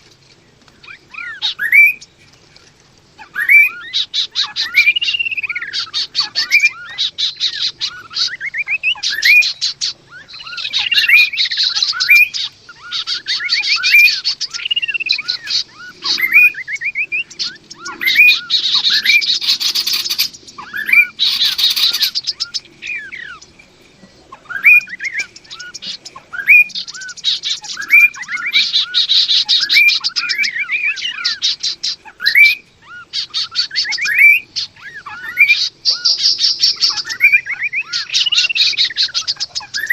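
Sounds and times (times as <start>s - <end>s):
birds rattling trills: 0.0s - 39.9s
birds slurred whistles: 0.0s - 39.9s.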